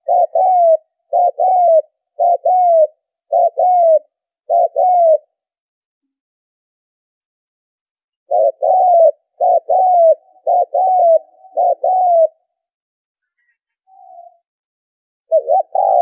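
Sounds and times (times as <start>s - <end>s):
dove cooing: 0.0s - 5.4s, 8.3s - 12.6s, 15.3s - 16.0s.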